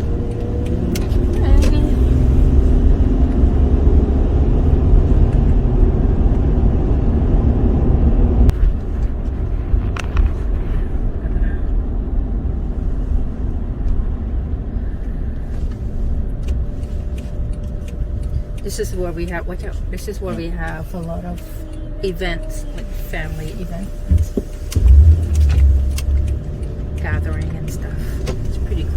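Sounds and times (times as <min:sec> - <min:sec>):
car road and engine noise: 0:00.0 - 0:28.9
faint clicks: 0:15.4 - 0:28.8.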